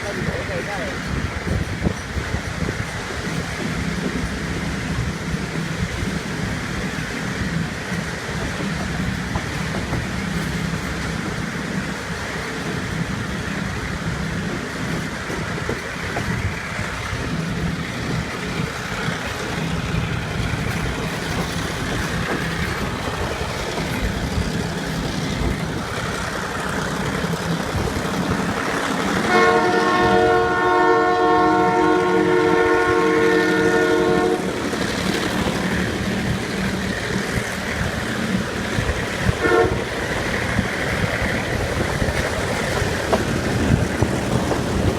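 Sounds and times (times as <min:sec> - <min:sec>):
diesel locomotive droning: 0:00.0 - 0:44.9
train horn chord: 0:29.3 - 0:34.6, 0:39.4 - 0:39.8.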